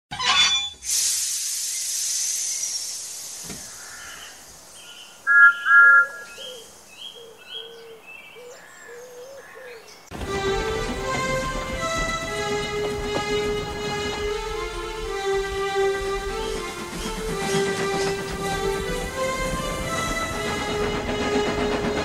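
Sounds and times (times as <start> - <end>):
hiss: 0.8 - 4.8
birds chirping: 3.6 - 21.4
music: 10.1 - 22.0.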